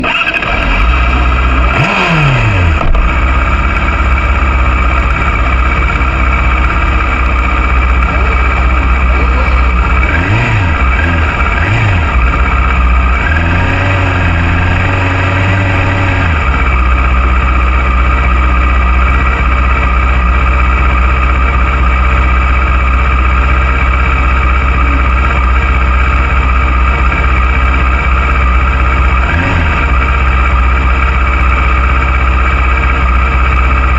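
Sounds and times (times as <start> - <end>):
racing motorcycle engine revving: 0.0 - 33.9.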